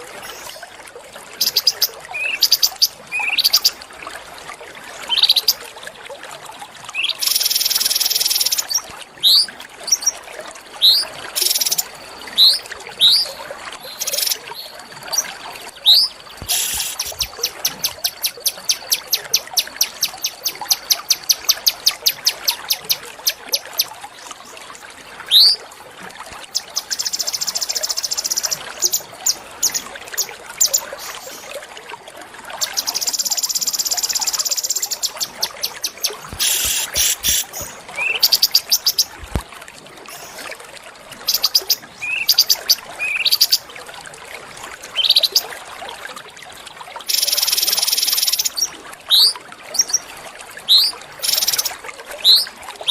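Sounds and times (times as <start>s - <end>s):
faint water trickle: 0.0s - 52.9s
songbirds chipping and trilling: 13.9s - 23.9s.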